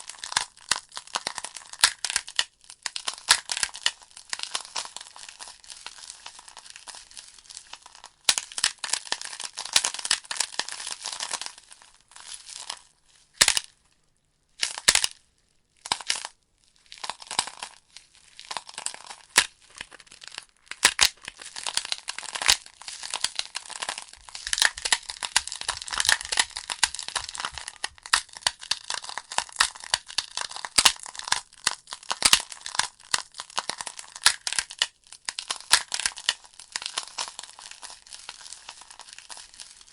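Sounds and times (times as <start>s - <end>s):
wood fire crackling and popping: 24.1s - 31.1s.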